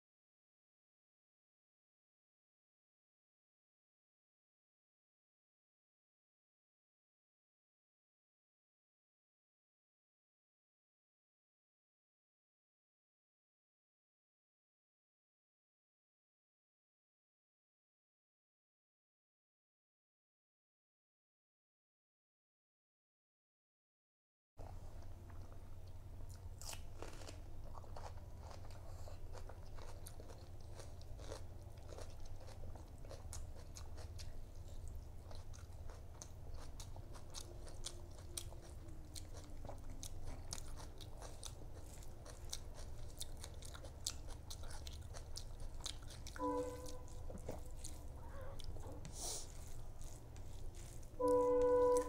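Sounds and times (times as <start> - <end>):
steady low hum: 24.6 - 52.0
chewing and wet mouth clicks: 25.0 - 48.9.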